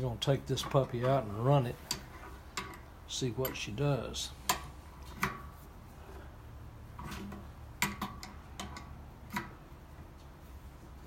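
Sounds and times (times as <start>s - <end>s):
steady low hum: 0.0s - 11.0s
tools clicking and knocking: 0.6s - 3.7s, 4.4s - 5.5s, 7.0s - 9.7s.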